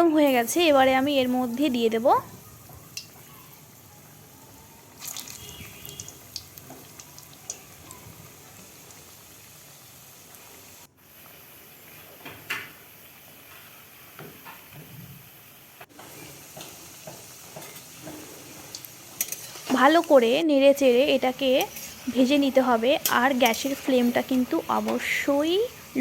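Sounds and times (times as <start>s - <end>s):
fritters sizzling in hot oil: 0.0s - 26.0s.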